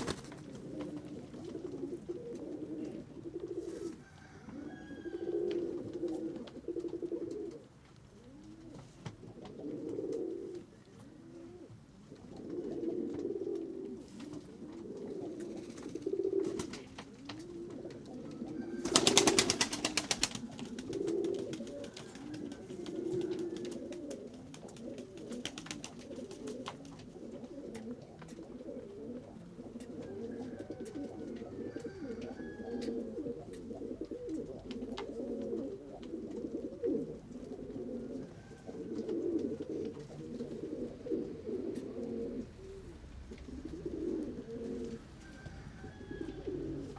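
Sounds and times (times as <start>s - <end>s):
wings flapping: 0.0s - 1.1s, 15.4s - 17.5s, 18.8s - 27.0s
pigeons cooing: 0.0s - 46.9s.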